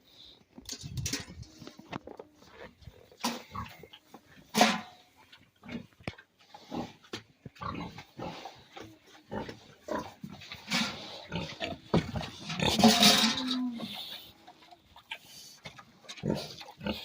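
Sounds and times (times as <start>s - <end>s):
pigs grunting: 5.6s - 17.0s.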